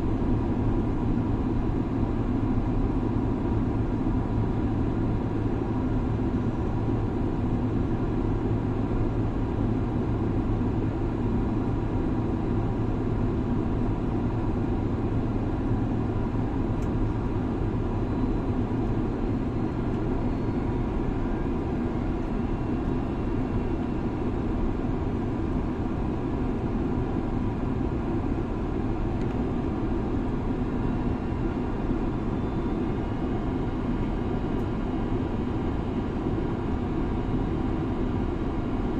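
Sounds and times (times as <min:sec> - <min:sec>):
jet airliner cabin drone: 0:00.0 - 0:38.9.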